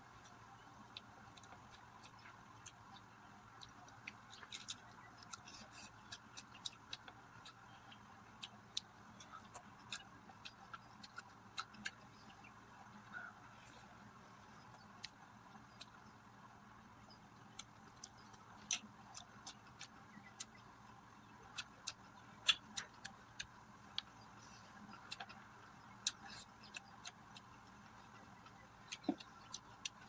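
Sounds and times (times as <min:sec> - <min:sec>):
chewing mouth sounds: 0:21.4 - 0:30.0.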